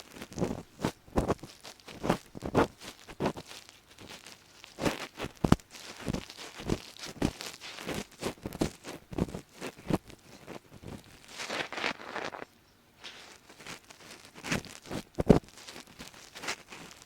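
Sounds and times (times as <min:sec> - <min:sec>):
ear pick scraping: 0:04.8 - 0:17.0.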